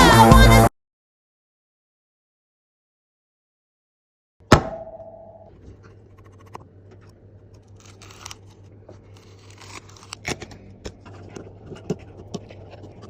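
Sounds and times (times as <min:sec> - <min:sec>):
low electrical hum: 0:04.4 - 0:13.0
sharp knock: 0:04.5 - 0:05.4
scratching and scraping on tablet: 0:05.6 - 0:13.0.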